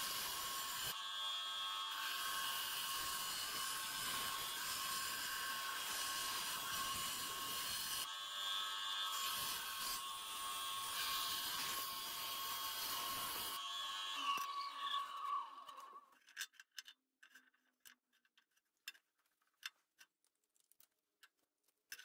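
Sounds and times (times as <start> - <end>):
electric power tool whining: 0.0 - 16.0.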